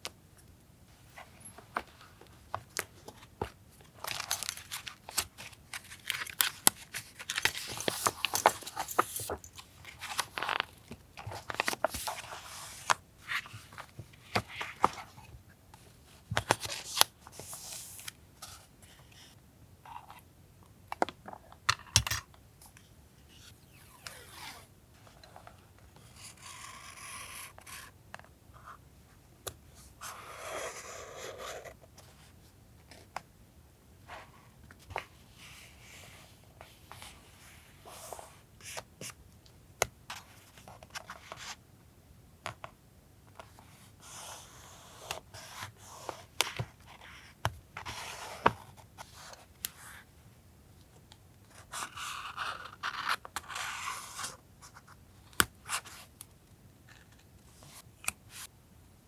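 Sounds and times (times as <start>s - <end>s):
paper crinkling and crackling: 3.9s - 12.4s.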